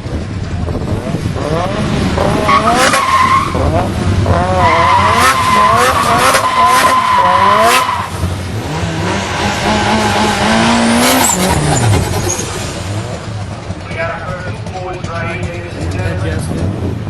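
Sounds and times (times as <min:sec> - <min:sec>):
car engine revving: 0:00.0 - 0:17.0
car tyres squealing: 0:01.8 - 0:14.0.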